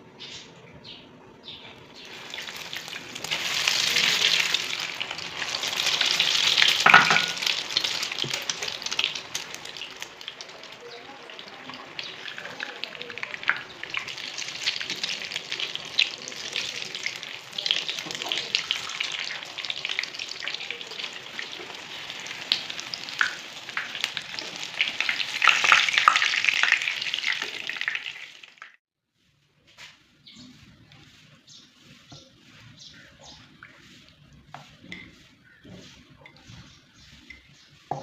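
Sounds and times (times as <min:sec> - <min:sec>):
food sizzling in hot oil: 0:01.9 - 0:28.8.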